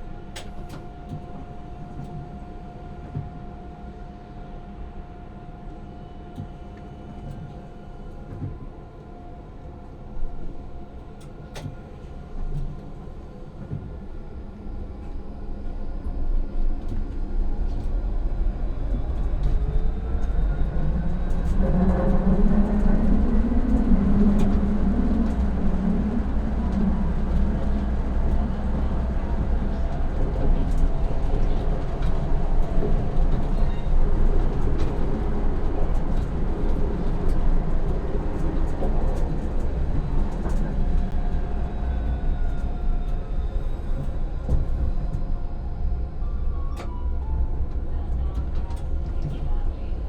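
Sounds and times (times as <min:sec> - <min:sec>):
low rumble of tram: 0:00.0 - 0:50.0
tram motors whining: 0:17.1 - 0:49.5.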